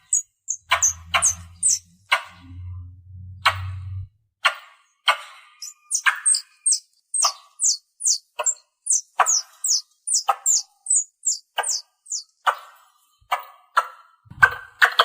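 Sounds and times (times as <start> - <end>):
lower harsher squirrel chirp: 0.0 - 1.9, 5.6 - 12.7
squirrel chirping: 0.0 - 2.4, 5.5 - 12.7.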